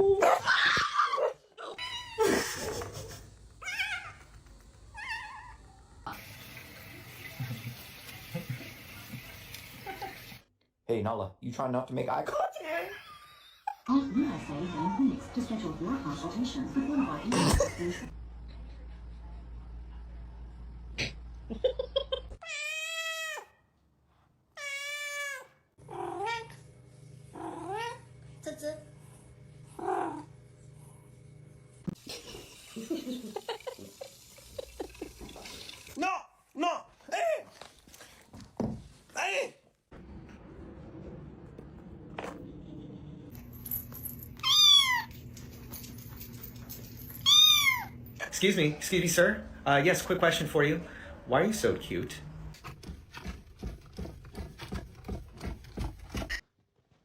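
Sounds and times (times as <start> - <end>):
cat meowing: 22.4 - 23.5, 44.4 - 45.2, 47.2 - 48.0
cat chirping: 47.2 - 48.0.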